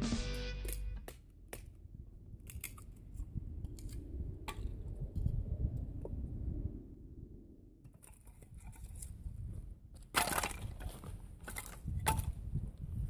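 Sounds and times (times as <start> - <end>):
firewood cracking: 0.7 - 4.8, 10.0 - 12.4.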